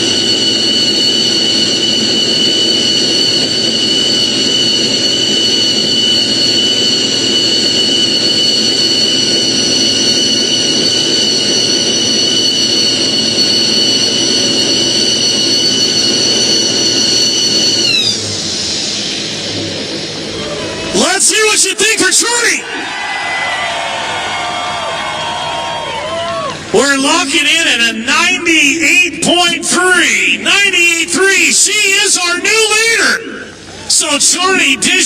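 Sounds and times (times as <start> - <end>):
diesel engine revving high: 0.0 - 22.9
steady high whine: 0.0 - 35.0.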